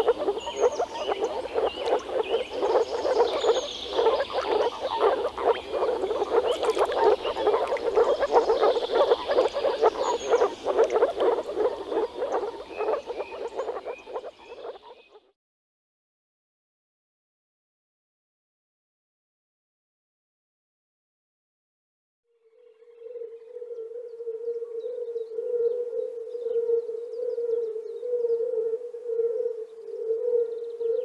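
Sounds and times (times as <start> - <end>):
faint high chirps: 0.0 - 15.2
frogs bubbling calls: 0.0 - 15.3.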